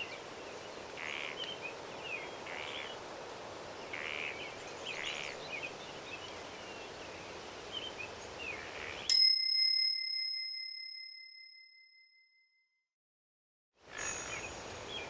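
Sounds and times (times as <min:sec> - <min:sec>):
songbirds chirping: 0:00.0 - 0:09.2, 0:13.9 - 0:15.0
bell ding ringing: 0:09.1 - 0:12.2, 0:14.0 - 0:14.8.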